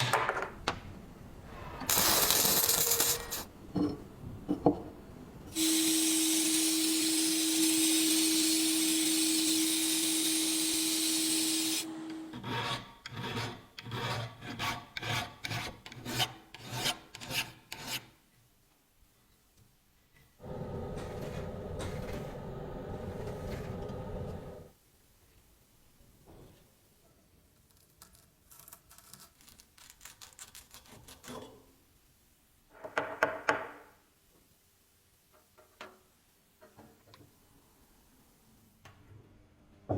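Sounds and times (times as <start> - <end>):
power tool humming: 5.6 - 12.2.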